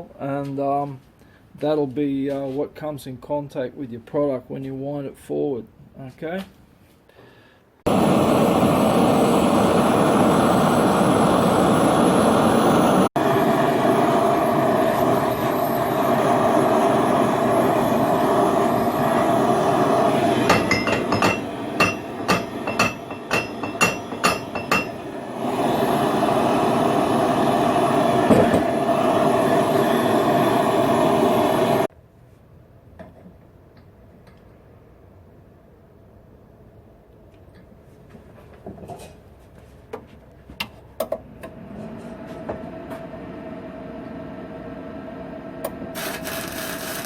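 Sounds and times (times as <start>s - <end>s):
gas burner hissing: 7.8s - 31.9s, 42.7s - 47.0s
hammer blows on hot steel: 7.9s - 31.9s.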